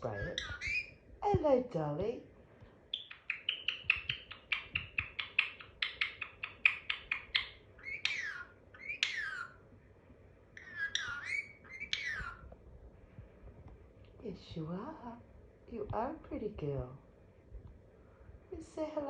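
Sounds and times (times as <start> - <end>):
parrot chirping: 0.0 - 1.0, 2.9 - 9.7, 10.5 - 12.6
parrot whistling: 0.0 - 1.0, 3.0 - 9.6, 10.6 - 12.5.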